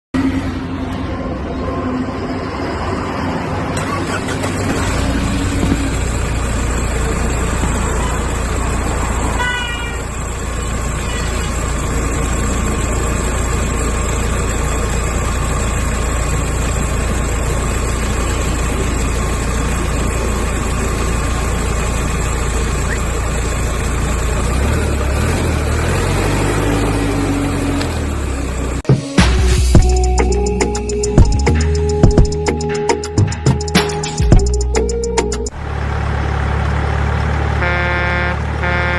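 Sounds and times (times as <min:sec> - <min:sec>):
toy vehicle engine drone: 0:03.9 - 0:24.4
toy horn toot: 0:09.3 - 0:10.1, 0:11.0 - 0:11.6, 0:37.6 - 0:38.9.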